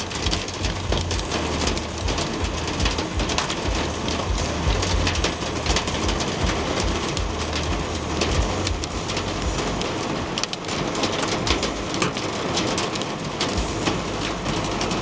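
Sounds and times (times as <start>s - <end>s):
steady low rumble: 0.0s - 10.3s, 13.5s - 15.0s
hail on metal roof: 0.0s - 15.0s.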